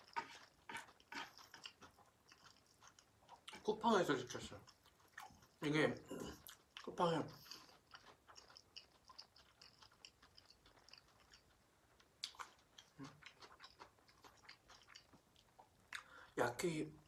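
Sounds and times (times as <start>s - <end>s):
wet chewing: 0.0s - 16.4s
mouth clicks and smacks: 6.3s - 16.3s.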